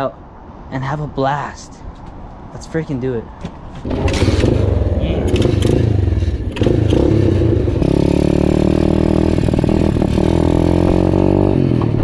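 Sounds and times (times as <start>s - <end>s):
motorbike engine running: 3.9s - 11.3s.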